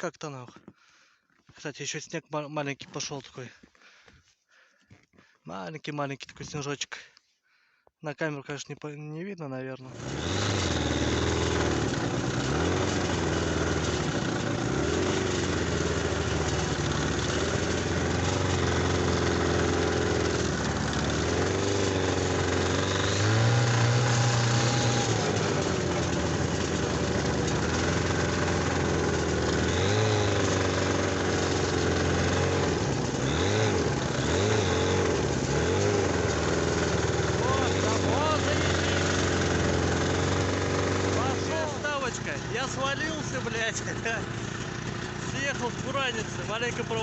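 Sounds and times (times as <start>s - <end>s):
snowmobile engine revving: 9.8s - 47.0s.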